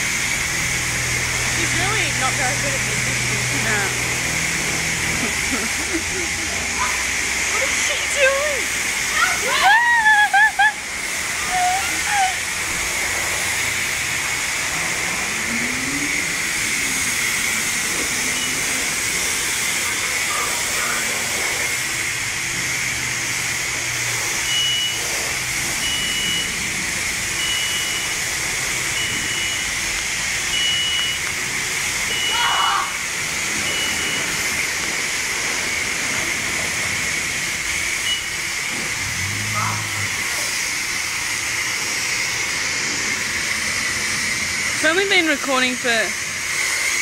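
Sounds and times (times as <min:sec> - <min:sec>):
high-pressure water spray hissing: 0:00.0 - 0:47.0
short high beeps: 0:27.4 - 0:28.2, 0:29.0 - 0:29.8, 0:30.5 - 0:31.2, 0:33.6 - 0:34.3, 0:38.0 - 0:38.4.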